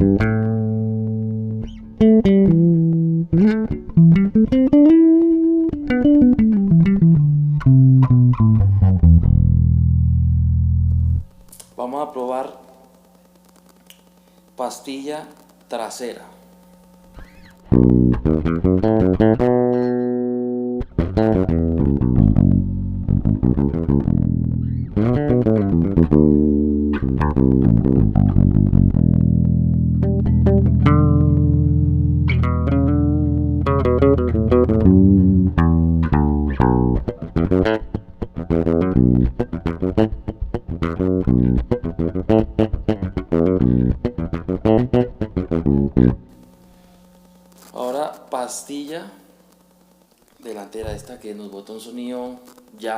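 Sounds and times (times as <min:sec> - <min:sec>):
solo electric bass plucked: 0:00.0 - 0:11.3, 0:17.6 - 0:46.3.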